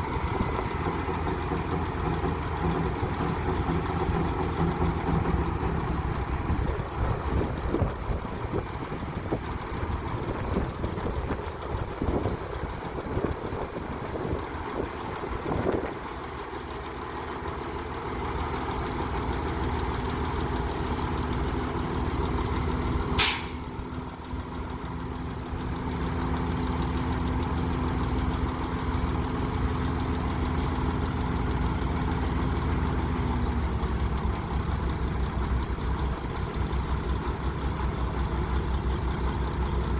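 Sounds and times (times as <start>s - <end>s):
bulldozer diesel engine running: 0.0s - 39.9s
short sharp hiss: 23.2s - 23.8s.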